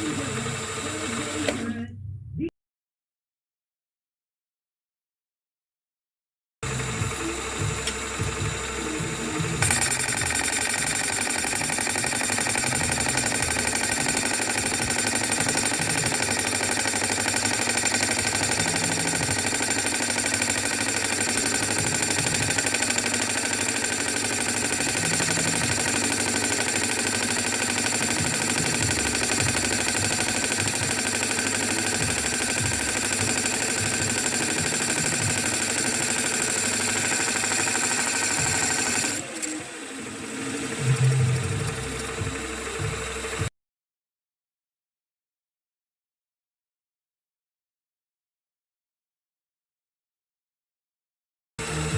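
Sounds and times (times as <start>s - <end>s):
boring machine cutter chatter: 0.0s - 1.9s, 6.6s - 43.5s
machine whine: 6.6s - 43.5s.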